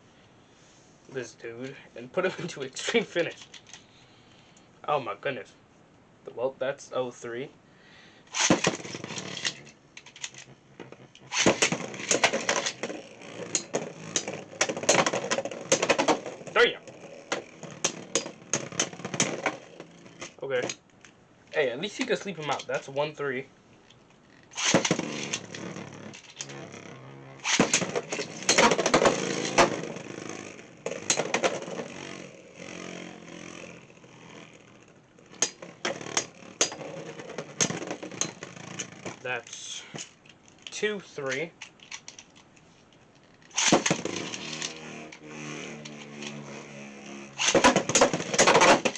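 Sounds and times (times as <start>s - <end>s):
spinning tops clattering: 8.3s - 20.9s, 24.5s - 39.2s, 43.5s - 48.9s.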